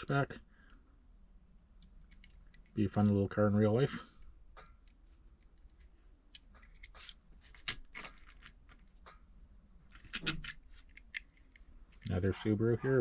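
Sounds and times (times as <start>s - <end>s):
toy cars clicking and rustling: 1.8s - 2.8s, 4.8s - 9.2s, 9.9s - 12.4s.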